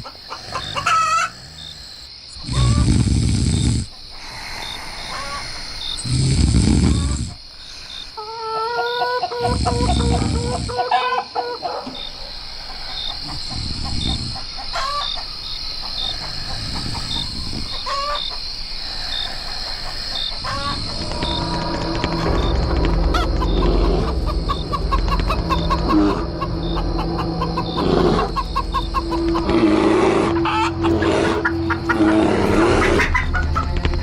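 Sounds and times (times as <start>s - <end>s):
chickens clucking: 0.0s - 2.0s, 3.9s - 6.0s, 7.8s - 34.0s
low rumbles: 20.4s - 34.0s.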